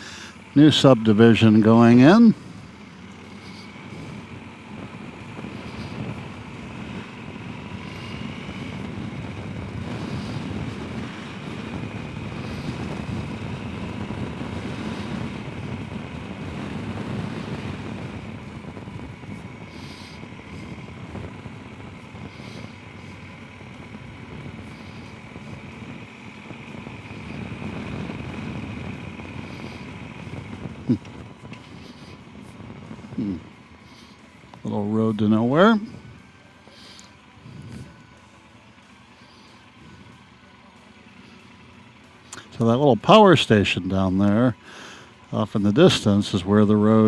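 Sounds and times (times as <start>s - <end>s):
road and wind noise: 0.0s - 47.0s.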